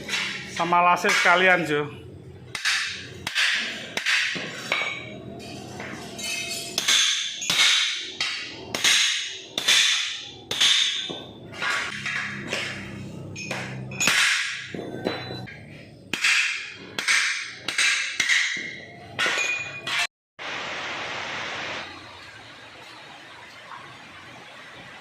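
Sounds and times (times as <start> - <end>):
hammer ringing on sheet metal: 6.2 - 11.4.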